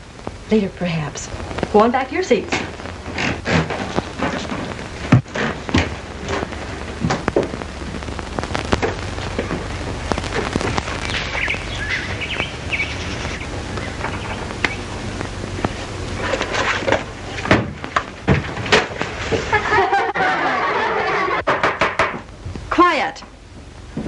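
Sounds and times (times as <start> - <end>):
film soundtrack hiss and crackle: 0.0 - 24.0
knocks and rustling: 2.5 - 7.7, 13.1 - 19.6
birds chirping: 8.4 - 16.4.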